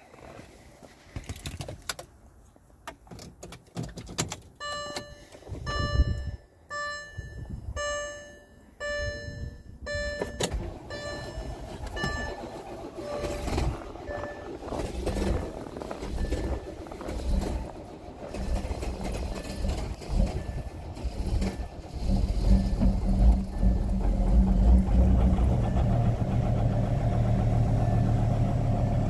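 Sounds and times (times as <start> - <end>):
car door and key clicks: 2.9 - 5.4
diesel engine starting and running: 4.2 - 29.0
dashboard warning chime: 4.6 - 17.6, 18.3 - 21.8.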